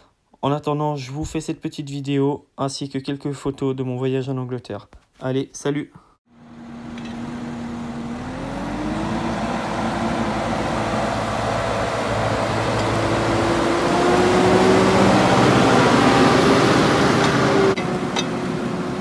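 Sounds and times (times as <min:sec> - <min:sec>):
tractor diesel engine: 0:06.4 - 0:19.0.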